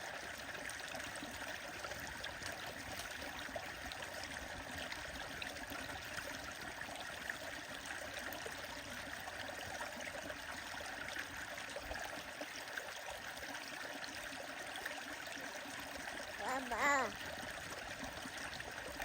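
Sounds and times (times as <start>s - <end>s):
stream flowing: 0.0s - 19.0s.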